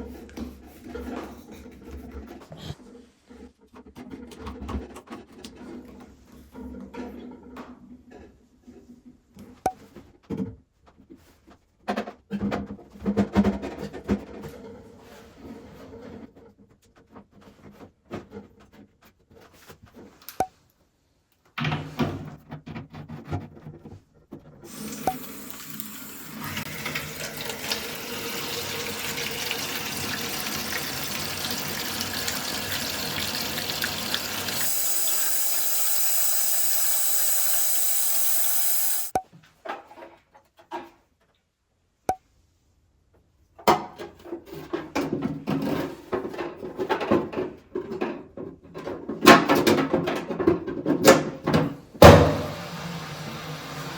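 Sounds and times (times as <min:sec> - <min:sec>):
water running into toilet tank: 0:24.7 - 0:39.2.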